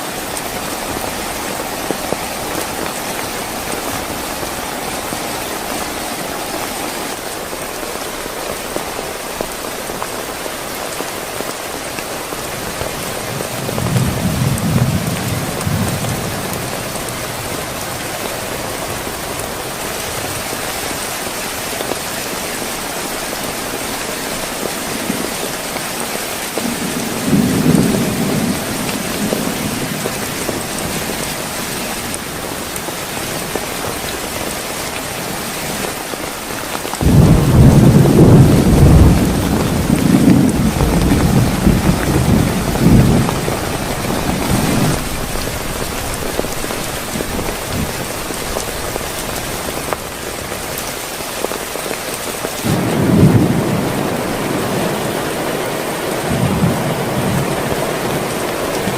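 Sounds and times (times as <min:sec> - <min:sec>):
heavy rain: 0:00.0 - 0:58.9
thunder rumbling: 0:24.3 - 0:35.4, 0:36.9 - 0:50.8, 0:52.6 - 0:58.9.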